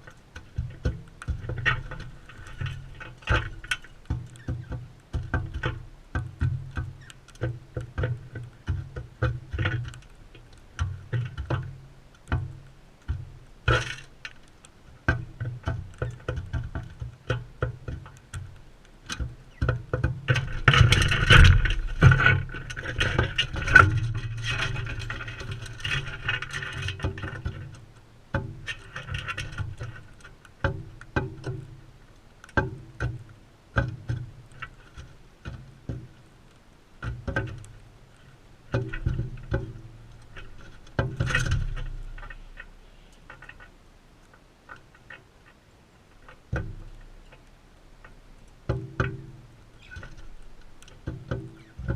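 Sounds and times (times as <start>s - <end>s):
birds pecking on a feeder: 0.0s - 51.9s.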